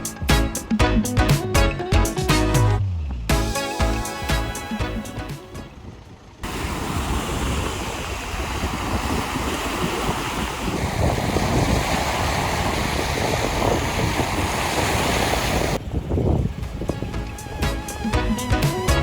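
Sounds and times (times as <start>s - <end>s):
wind buffeting microphone: 5.6s - 18.5s
sea surf washing on shore: 6.4s - 19.0s.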